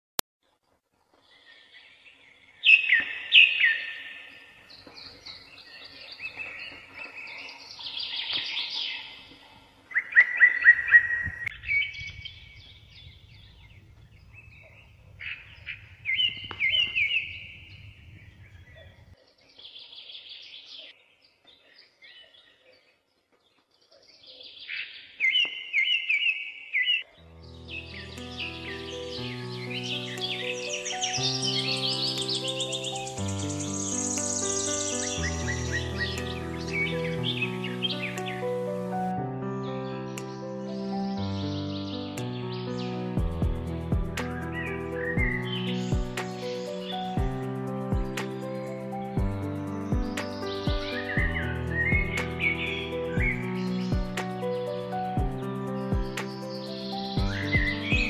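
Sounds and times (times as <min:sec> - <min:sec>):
songbird singing: 0:01.1 - 0:58.0
music: 0:27.2 - 0:58.0.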